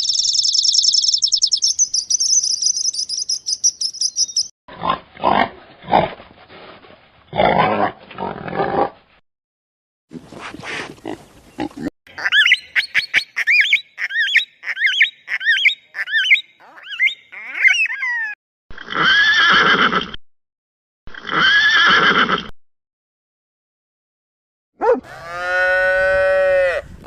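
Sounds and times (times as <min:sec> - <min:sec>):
animal calls: 0:12.1 - 0:18.4, 0:24.8 - 0:25.5
horse whinnying: 0:18.8 - 0:20.2, 0:21.1 - 0:22.5.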